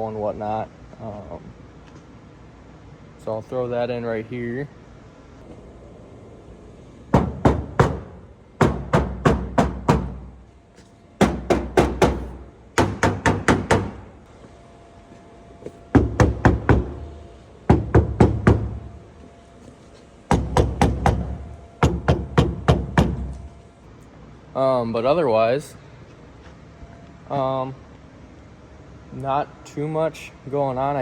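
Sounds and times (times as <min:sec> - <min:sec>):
knocks on sheet-metal car panels: 0:07.2 - 0:10.3, 0:11.2 - 0:14.0, 0:16.0 - 0:17.0, 0:17.7 - 0:18.8, 0:20.3 - 0:23.3.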